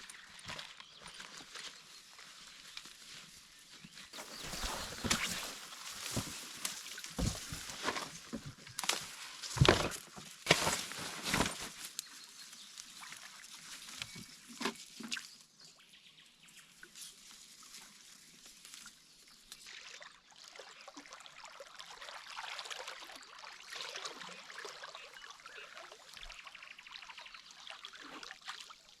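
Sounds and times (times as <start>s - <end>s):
water trickling: 4.2s - 8.5s
water sloshing and splashing: 4.2s - 11.9s.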